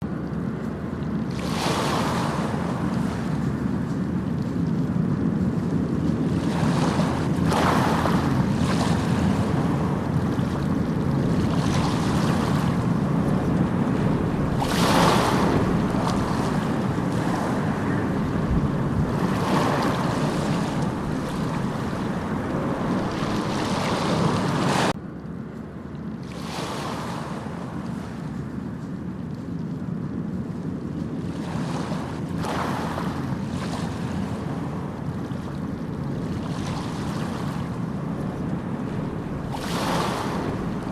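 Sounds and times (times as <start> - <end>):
waves breaking on beach: 0.0 - 25.0, 26.2 - 40.9
wind on microphone: 0.0 - 25.0, 26.2 - 40.9.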